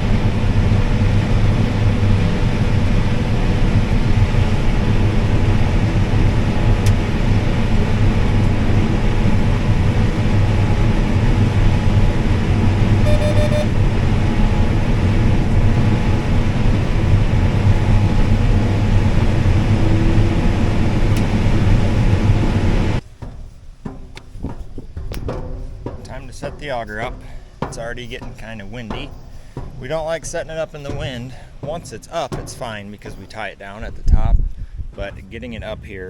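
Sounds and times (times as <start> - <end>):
combine harvester drone: 0.0 - 35.9
short beep: 13.0 - 13.8.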